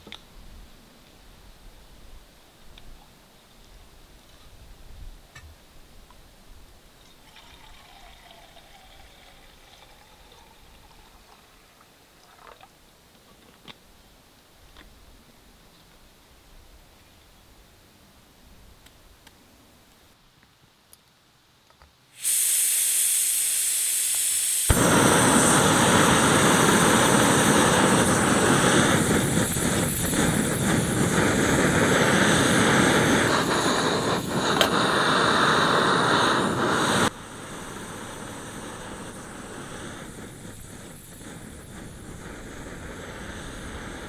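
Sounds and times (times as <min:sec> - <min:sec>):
gas hissing from valve: 0:22.1 - 0:44.0
gas burner roaring: 0:22.2 - 0:44.0.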